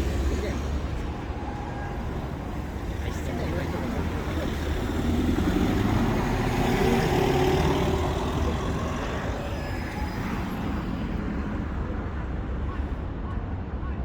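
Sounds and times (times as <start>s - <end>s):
motor vehicle passing: 3.1s - 11.7s.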